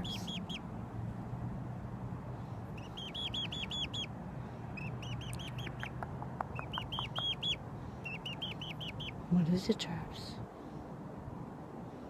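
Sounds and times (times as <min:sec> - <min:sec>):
pet bird calling: 0:00.0 - 0:00.6, 0:02.7 - 0:04.1, 0:04.8 - 0:09.2
low steady hum: 0:00.0 - 0:10.8.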